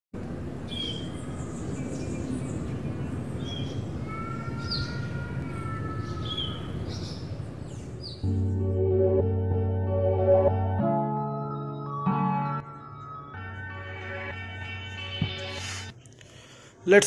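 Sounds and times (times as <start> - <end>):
birds chirping: 0.6 - 8.3
keyboard music: 8.2 - 15.9.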